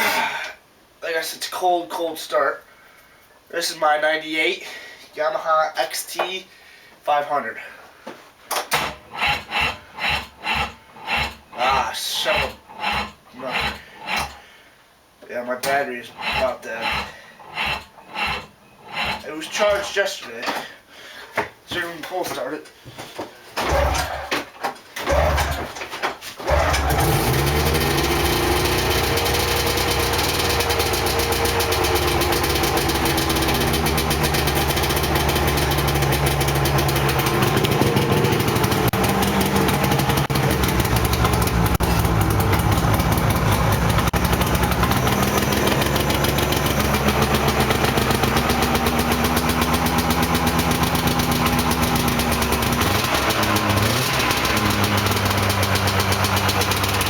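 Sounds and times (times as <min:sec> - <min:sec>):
snowmobile engine idling: 0:26.5 - 0:57.0.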